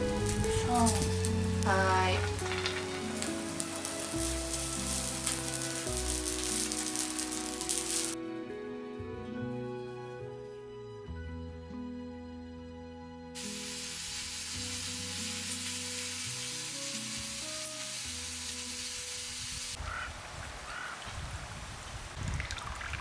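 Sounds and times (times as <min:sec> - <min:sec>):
rough rustling with clicks: 0:00.0 - 0:08.2
sausages sizzling on a grill: 0:00.0 - 0:08.2, 0:13.4 - 0:19.8
soft background music: 0:00.0 - 0:19.3.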